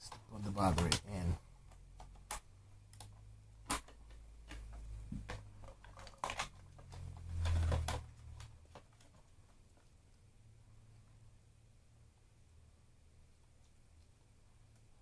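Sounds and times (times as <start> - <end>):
plastic clicks and rustling: 0.0 - 9.9.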